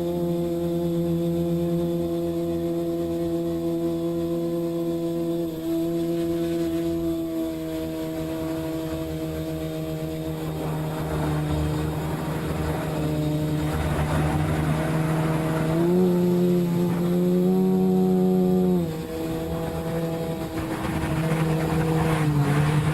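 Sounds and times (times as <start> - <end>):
drone propellers humming: 0.0 - 22.9
rough rushing noise: 9.3 - 17.6, 18.8 - 22.9.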